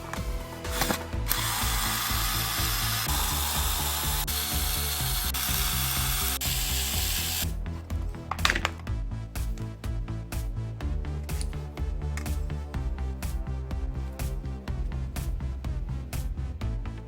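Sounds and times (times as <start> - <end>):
background music: 0.0 - 17.0
cordless drill driving a screw: 0.7 - 7.5.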